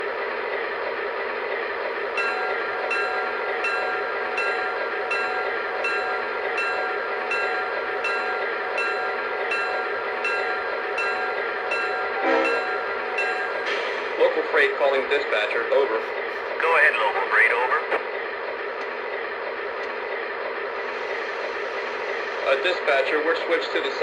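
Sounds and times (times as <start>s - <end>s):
model diesel locomotive engine: 0.0s - 24.0s
locomotive bell ringing: 2.1s - 15.6s.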